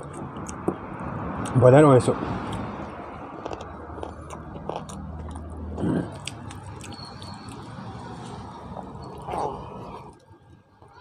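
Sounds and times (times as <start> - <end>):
man chewing: 0.0 - 0.8, 2.4 - 10.2.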